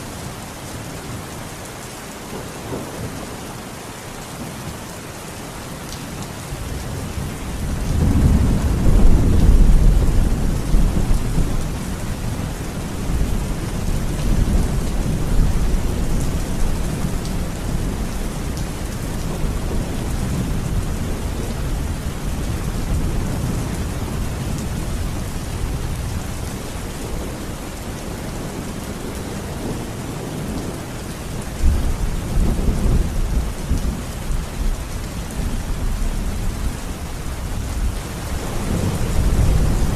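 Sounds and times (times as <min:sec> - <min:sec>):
steady rain hissing: 0:00.0 - 0:39.9
rolling thunder: 0:06.7 - 0:27.5, 0:37.5 - 0:39.9.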